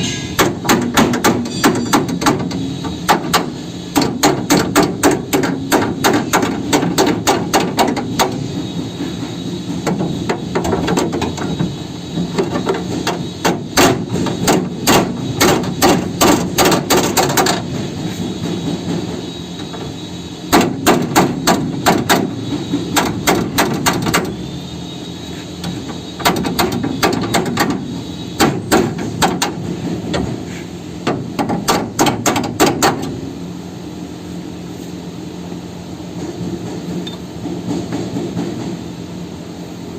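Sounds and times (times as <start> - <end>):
hammer striking metal: 0.0 - 8.4
steady low hum: 0.0 - 39.9.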